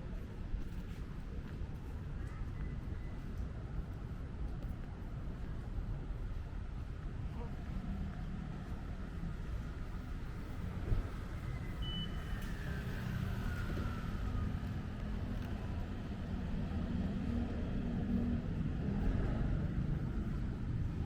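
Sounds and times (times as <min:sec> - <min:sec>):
street traffic rumbling: 0:00.0 - 0:21.0
short high beep: 0:11.8 - 0:12.3.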